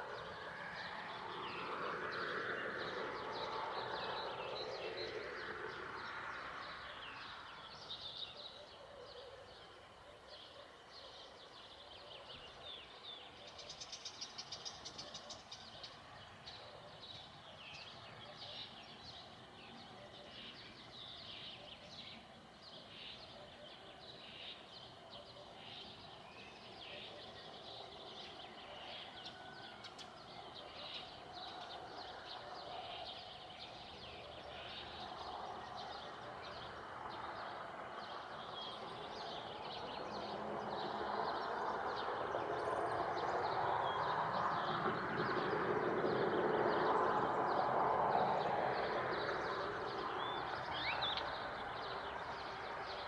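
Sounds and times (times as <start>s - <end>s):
distant passing vehicle: 0.0s - 8.2s, 26.9s - 53.0s
birds chirping: 7.0s - 53.0s.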